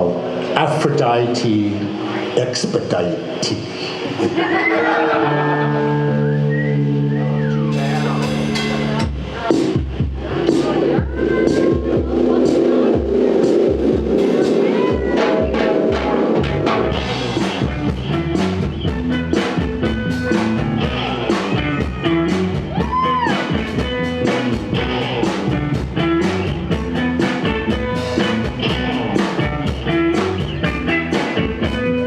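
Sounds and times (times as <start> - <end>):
electric guitar: 3.9 - 9.8, 15.9 - 32.0
drums: 5.8 - 32.0.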